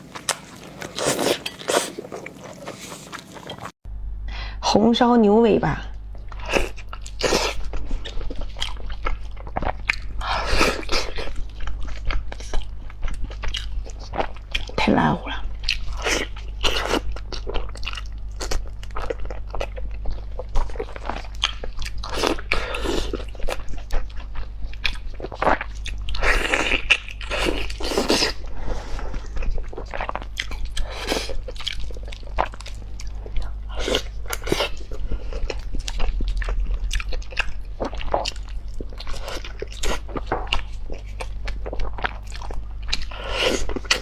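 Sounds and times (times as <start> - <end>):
noisy sucking at meat: 0.0 - 3.7.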